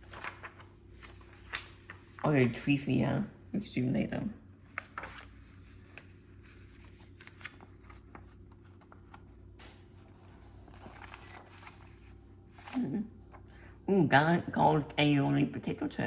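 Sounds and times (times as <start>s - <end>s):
packaging and paper rustling: 0.0s - 2.7s, 4.7s - 13.4s
low steady hum: 0.0s - 16.0s.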